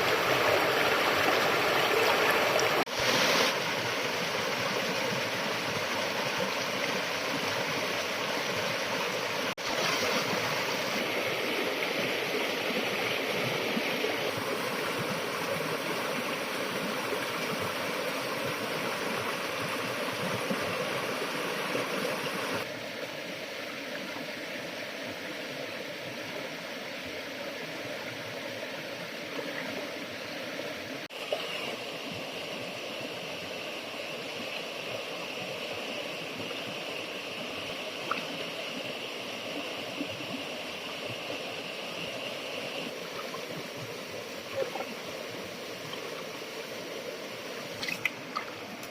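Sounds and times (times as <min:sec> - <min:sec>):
rushing flowing water: 0:00.0 - 0:48.9.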